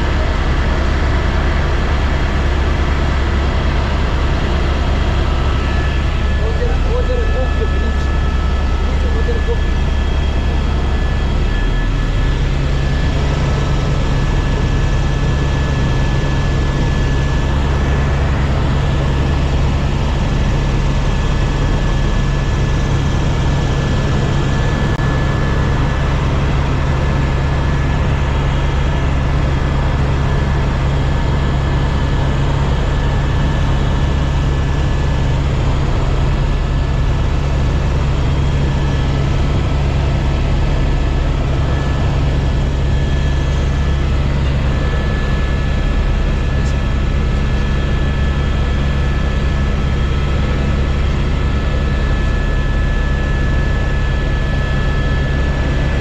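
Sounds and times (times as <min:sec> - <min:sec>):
helicopter rotor and engine: 0:00.0 - 0:56.0
high whine: 0:03.6 - 0:28.8.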